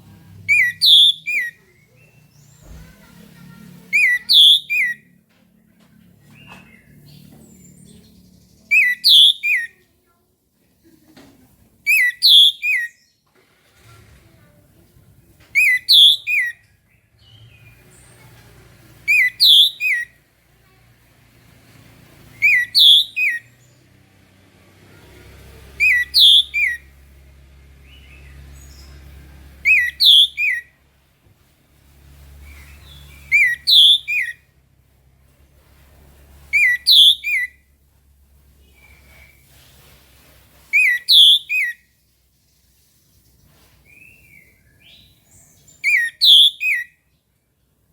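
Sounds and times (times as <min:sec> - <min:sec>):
thrush singing whistled phrase: 0:00.5 - 0:01.6, 0:03.9 - 0:05.0, 0:08.7 - 0:09.7, 0:11.9 - 0:13.0, 0:15.6 - 0:16.6, 0:19.1 - 0:20.1, 0:22.4 - 0:23.5, 0:25.8 - 0:26.9, 0:29.6 - 0:30.7, 0:33.0 - 0:34.4, 0:36.6 - 0:37.6, 0:40.8 - 0:41.8, 0:45.8 - 0:46.9.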